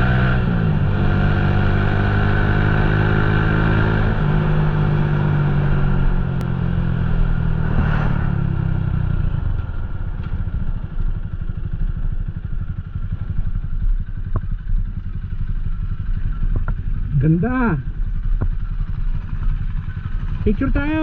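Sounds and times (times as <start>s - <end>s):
road and wind noise: 0.0s - 21.0s
motorcycle engine idling: 8.6s - 21.0s.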